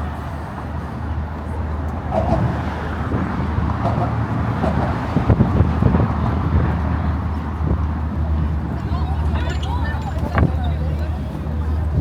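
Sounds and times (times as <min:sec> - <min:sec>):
faint voices: 0:00.0 - 0:12.0
road traffic rumble: 0:00.0 - 0:12.0.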